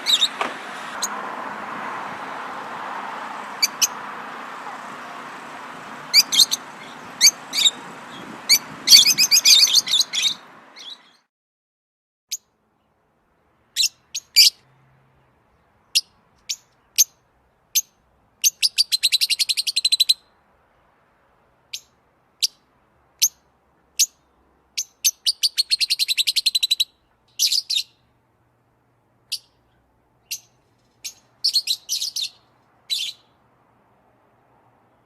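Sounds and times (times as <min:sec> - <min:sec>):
songbird chirping: 0:00.0 - 0:11.3, 0:12.3 - 0:28.6, 0:29.2 - 0:34.0
songbird trills: 0:06.1 - 0:11.2, 0:15.5 - 0:20.3, 0:21.7 - 0:28.2, 0:29.2 - 0:33.4.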